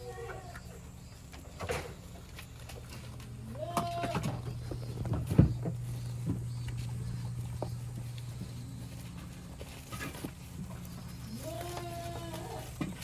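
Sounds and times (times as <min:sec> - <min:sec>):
steady low hum: 0:00.0 - 0:13.0
goats knocking and clicking: 0:00.3 - 0:13.0.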